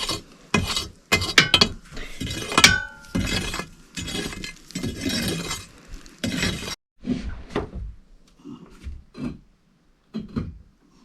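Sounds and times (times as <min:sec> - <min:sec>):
metal scoop scraping in stove: 0:00.0 - 0:07.4.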